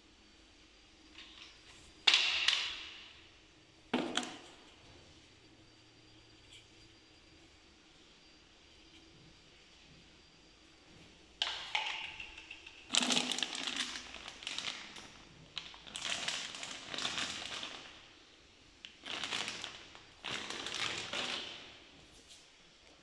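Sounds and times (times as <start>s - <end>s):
packaging crinkling and rustling: 12.9s - 18.1s, 18.8s - 21.8s.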